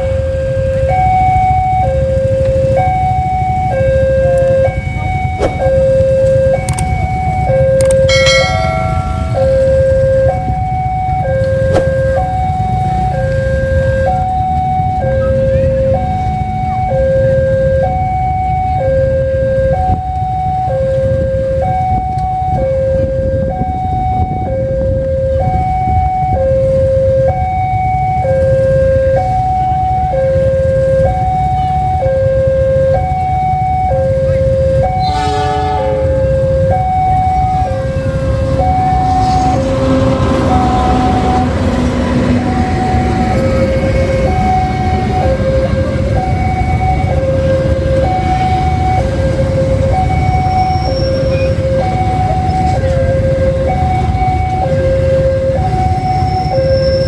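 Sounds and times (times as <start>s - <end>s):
two-tone electronic alarm: 0.0s - 57.0s
sharp clicks: 6.6s - 6.9s
steady low rumble: 36.0s - 50.4s.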